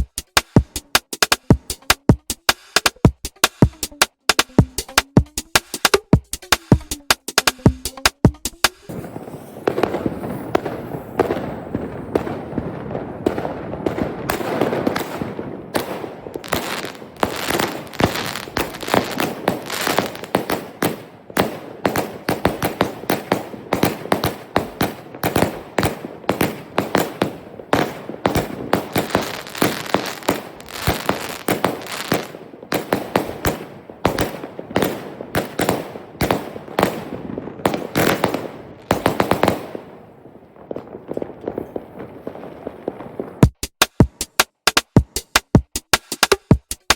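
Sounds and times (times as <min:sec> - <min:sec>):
fireworks bangs and crackles: 0:08.8 - 0:44.2.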